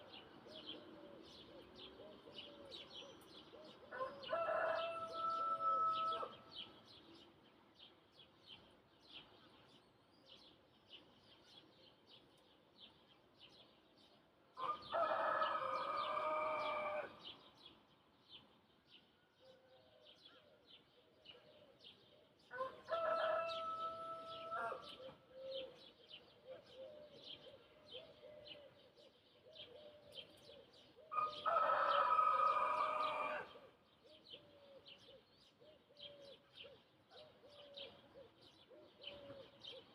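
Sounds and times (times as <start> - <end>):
small birds chirping: 0.0 - 39.9
rooster crowing: 3.9 - 6.3, 14.6 - 17.2, 22.5 - 24.9, 31.1 - 33.6.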